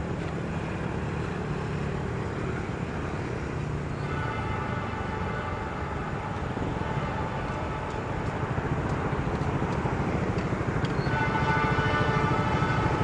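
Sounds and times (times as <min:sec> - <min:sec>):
locomotive engine rumble: 0:00.0 - 0:13.0
steady chord-like tone: 0:03.4 - 0:09.3.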